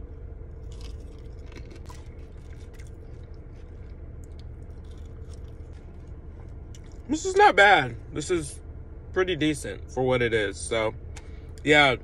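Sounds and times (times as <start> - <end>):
steady low hum: 0.0 - 12.0
person chewing food: 0.5 - 7.1.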